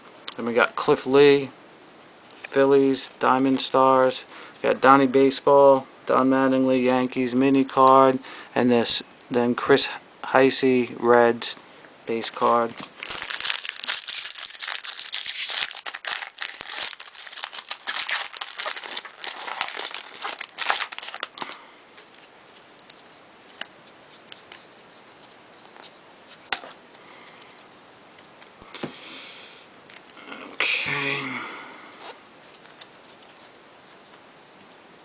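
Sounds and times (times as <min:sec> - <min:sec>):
wrapper crinkling and tearing: 0:12.8 - 0:22.3.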